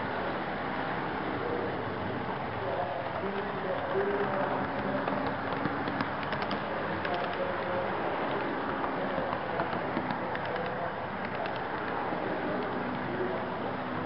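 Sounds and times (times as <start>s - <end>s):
faint mechanical hum: 0.0s - 14.0s
wheels clicking over rail joints: 2.8s - 14.0s.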